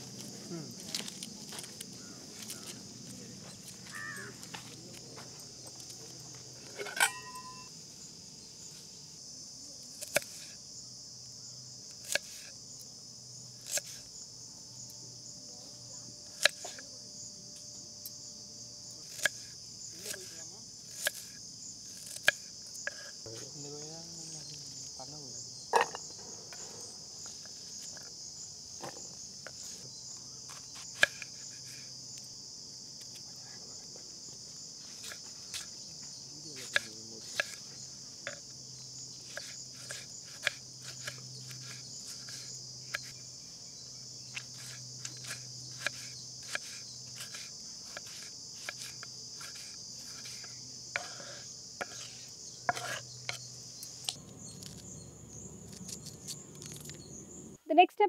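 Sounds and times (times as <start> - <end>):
insects chirring: 0.0 - 58.0
knife chopping on wooden board: 36.6 - 38.4, 39.2 - 43.2, 44.3 - 53.5.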